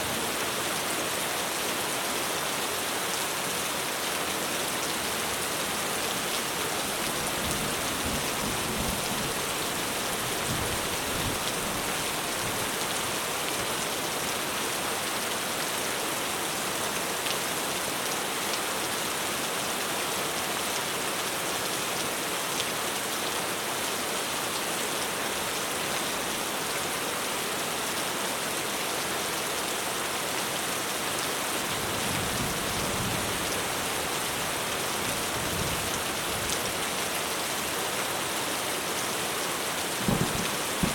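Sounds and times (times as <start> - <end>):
heavy rain on a roof: 0.0 - 40.9.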